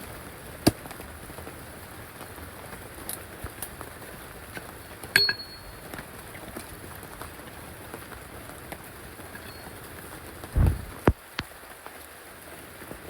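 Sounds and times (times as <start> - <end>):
steady rain hiss: 0.0 - 13.0
short clink: 5.2 - 5.8
sharp knock: 10.6 - 11.0.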